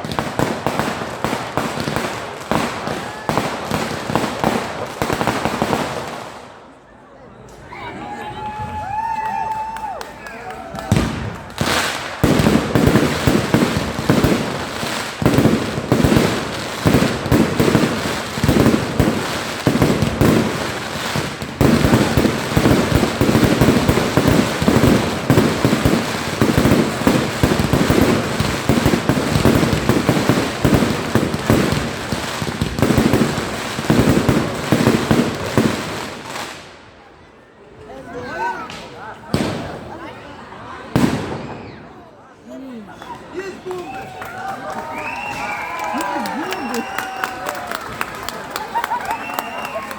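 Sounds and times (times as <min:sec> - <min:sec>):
fireworks bangs and crackles: 0:00.0 - 0:06.8, 0:10.7 - 0:37.1, 0:38.6 - 0:40.2, 0:40.8 - 0:42.1.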